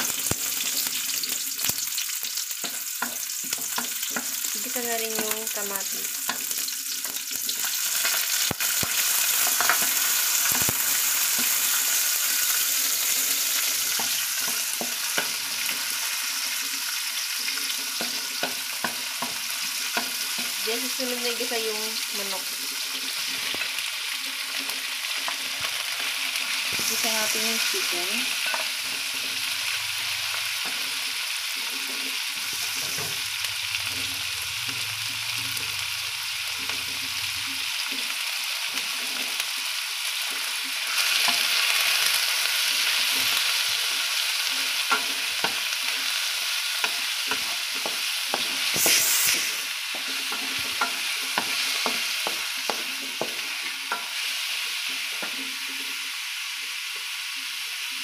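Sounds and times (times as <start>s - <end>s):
chicken sizzling in hot oil: 0.0s - 58.0s
wooden spatula scraping a pan: 30.5s - 33.2s.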